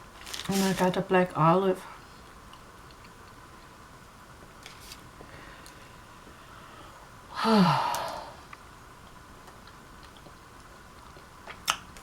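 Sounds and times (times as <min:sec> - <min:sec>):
woman sighing: 0:07.3 - 0:08.4.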